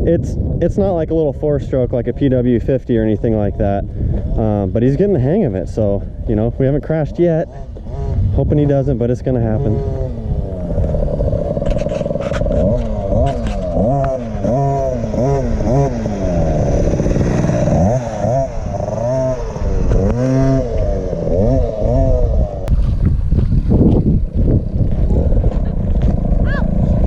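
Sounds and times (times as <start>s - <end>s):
two-stroke engine revving: 6.9s - 22.7s, 24.2s - 27.0s.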